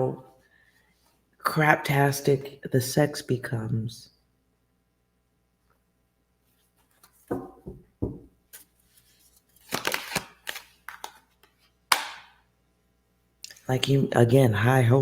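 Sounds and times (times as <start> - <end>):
cards flicking and snapping: 9.6 - 11.2, 11.9 - 12.4.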